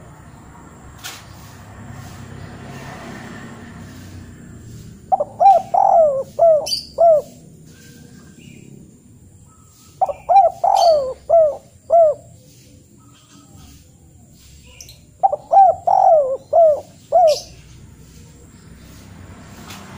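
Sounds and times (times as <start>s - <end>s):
bird calling: 4.7s - 18.6s.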